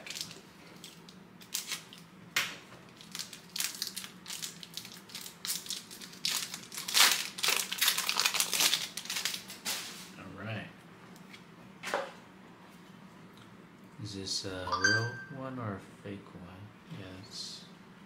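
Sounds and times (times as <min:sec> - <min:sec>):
wrapper crinkling: 0:00.0 - 0:02.0, 0:02.9 - 0:09.6.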